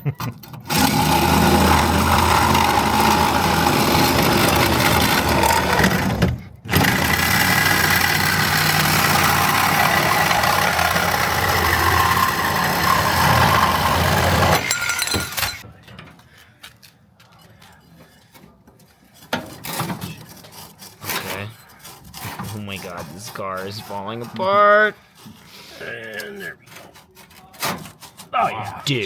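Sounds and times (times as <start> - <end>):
power tool cutting metal pipe: 0.7 - 15.6.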